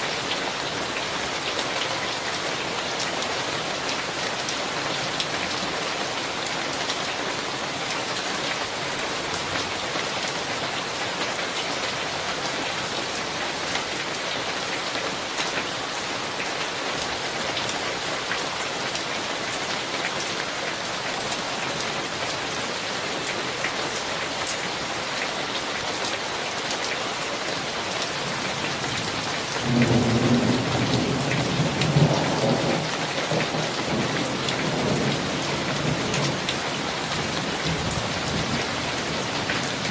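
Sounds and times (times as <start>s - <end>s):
heavy rain falling: 0.0s - 39.9s
thunder rumbling: 29.6s - 36.4s.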